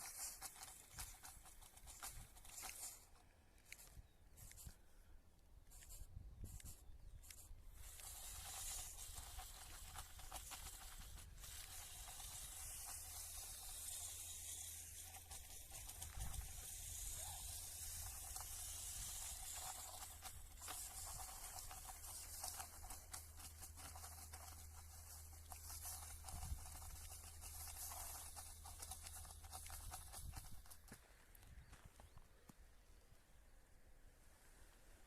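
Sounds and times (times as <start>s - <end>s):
hiss: 0.0s - 3.1s, 5.7s - 31.0s
small plastic gear clicks: 0.0s - 4.8s, 5.7s - 31.5s
small electric motor whine: 5.7s - 31.0s.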